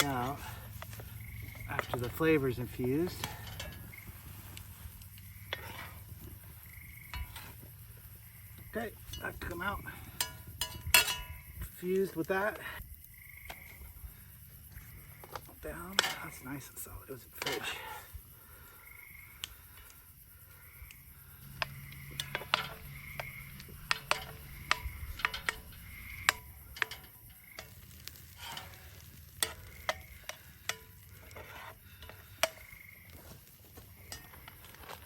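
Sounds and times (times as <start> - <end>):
utensil scraping a pan: 0.0 - 7.6, 21.4 - 35.0
faint sizzle: 21.2 - 34.4.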